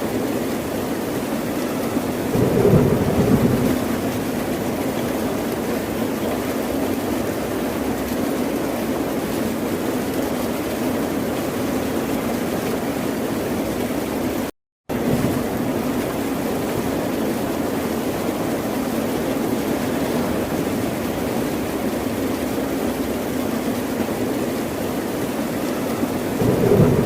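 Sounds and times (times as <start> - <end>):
ocean surf rushing: 26.4 - 27.0.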